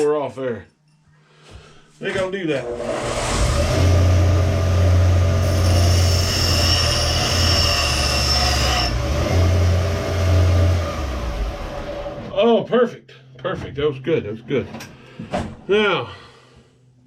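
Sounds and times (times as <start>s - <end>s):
motor hum: 2.5s - 12.3s
high-pitched metal screech: 2.6s - 9.0s
grinder grinding steel: 2.6s - 12.2s.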